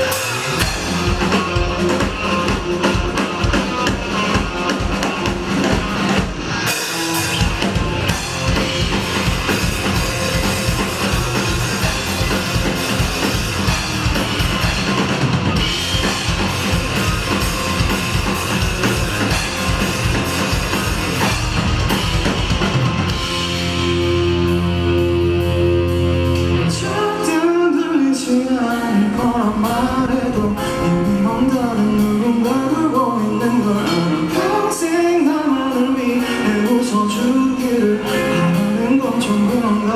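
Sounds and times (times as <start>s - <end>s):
live rock band playing: 0.0s - 39.9s
person singing: 25.4s - 39.9s.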